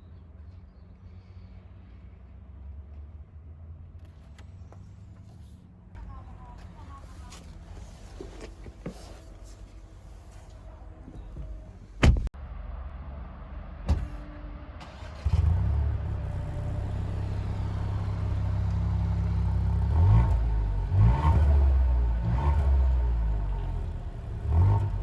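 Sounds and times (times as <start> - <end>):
car engine starting and idling: 4.0 - 25.0
sharp thump: 12.0 - 12.4, 13.9 - 14.3
engine revving: 12.7 - 25.0.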